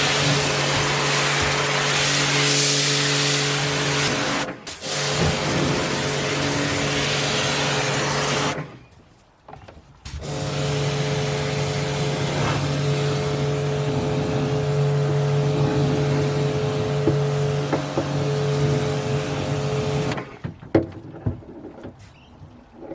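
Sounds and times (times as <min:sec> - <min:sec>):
pressure washer spraying water: 0:00.0 - 0:08.7, 0:10.2 - 0:20.3
motor hum: 0:10.2 - 0:20.3.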